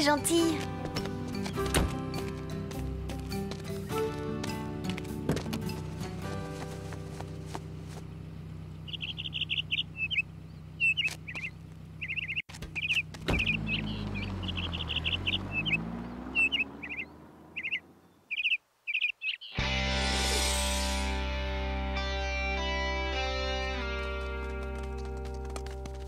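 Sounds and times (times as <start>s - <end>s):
cartoon bird chirping trills: 8.9s - 19.6s
loud guitar music: 19.6s - 25.4s.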